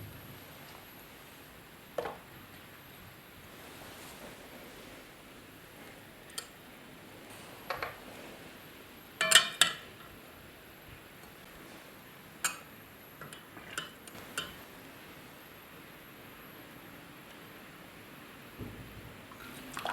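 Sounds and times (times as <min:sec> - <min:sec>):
dishes and utensils clinking: 0:09.2 - 0:09.9.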